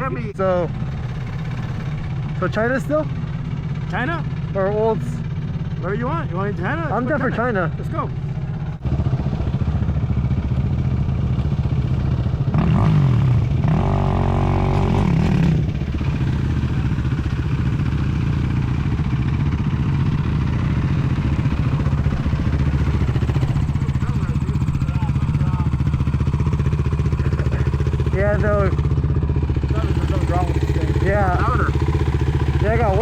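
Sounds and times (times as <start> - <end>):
quad engine running and revving: 8.5 - 33.0.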